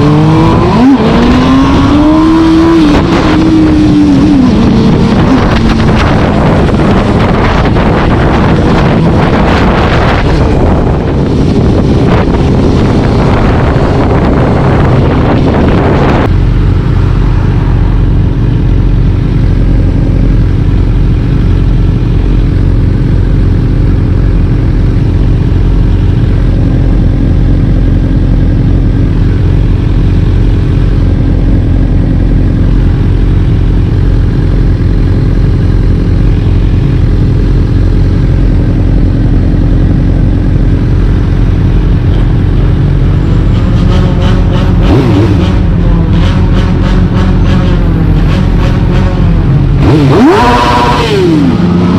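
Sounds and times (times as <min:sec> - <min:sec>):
vehicle engine running: 0:00.0 - 0:51.9
wind noise on microphone: 0:00.0 - 0:51.9.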